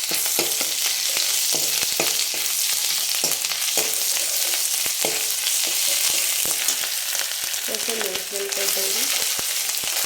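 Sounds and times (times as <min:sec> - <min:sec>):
spoon scraping against a pan: 0:00.0 - 0:07.4
food sizzling in a pan: 0:00.0 - 0:10.0.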